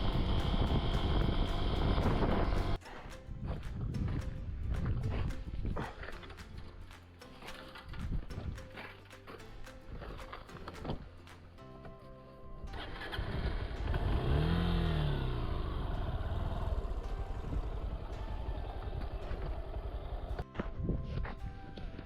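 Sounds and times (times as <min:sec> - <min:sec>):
motorcycle engine revving: 0:00.0 - 0:02.8, 0:12.7 - 0:20.4
background music: 0:00.0 - 0:22.0.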